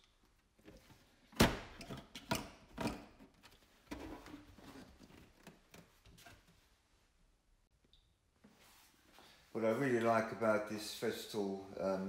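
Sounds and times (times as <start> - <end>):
soft rustle: 8.4 - 9.6.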